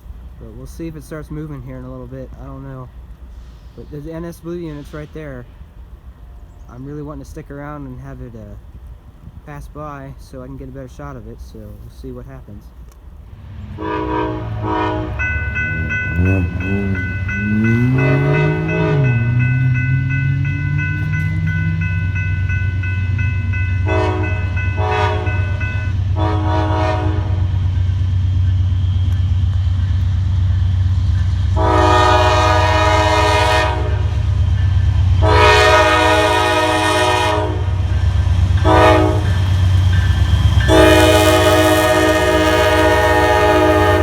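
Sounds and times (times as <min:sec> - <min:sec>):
diesel locomotive engine drone: 0:00.0 - 0:44.0
locomotive air horn blasts: 0:13.8 - 0:27.6, 0:31.5 - 0:34.2, 0:35.2 - 0:38.0, 0:38.6 - 0:39.5, 0:40.6 - 0:44.0.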